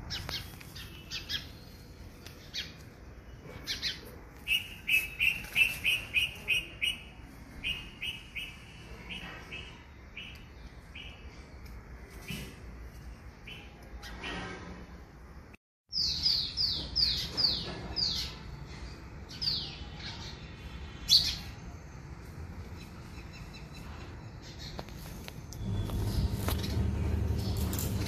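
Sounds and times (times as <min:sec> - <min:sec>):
bird chirping: 0:00.1 - 0:11.5.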